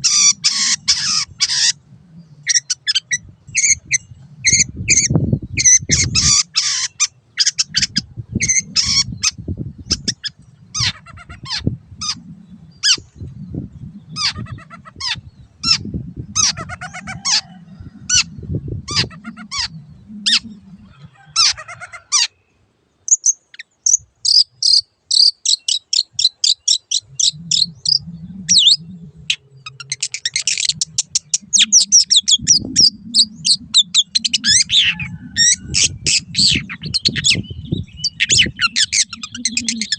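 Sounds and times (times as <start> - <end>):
shrike singing: 23.1 - 39.9.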